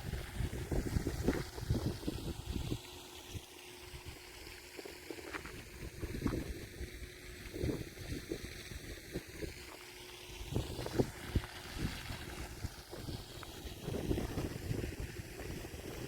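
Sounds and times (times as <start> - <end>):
wind buffeting microphone: 0.0 - 2.8, 5.5 - 9.7, 10.4 - 16.0.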